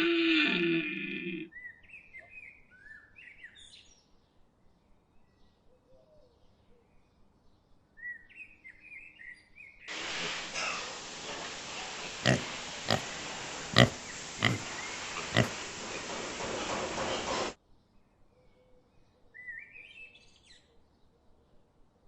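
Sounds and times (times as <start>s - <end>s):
short sharp animal calls: 12.0s - 15.7s.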